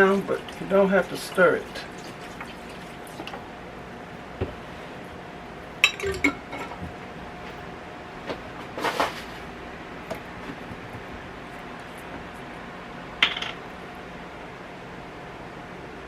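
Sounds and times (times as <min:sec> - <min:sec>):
kitchen utensils clinking: 0:05.8 - 0:06.8
utensils clattering: 0:05.8 - 0:06.8.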